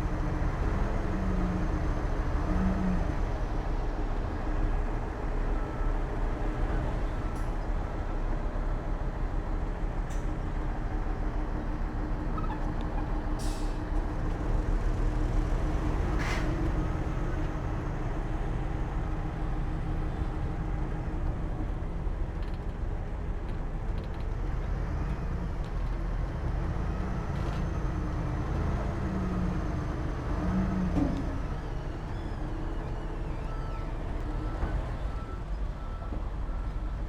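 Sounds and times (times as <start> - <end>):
heavy diesel machinery droning: 24.5 - 37.0.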